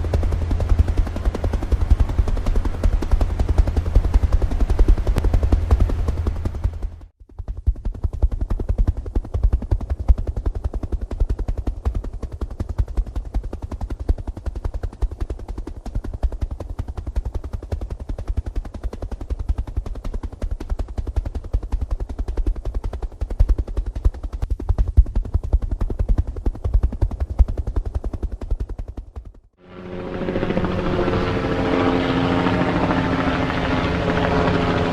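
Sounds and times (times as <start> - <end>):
helicopter rotor blades chopping: 0.0 - 34.9.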